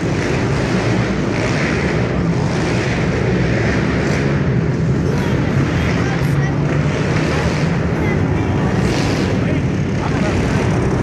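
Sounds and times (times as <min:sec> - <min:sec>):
small motorcycle engines: 0:00.0 - 0:11.0.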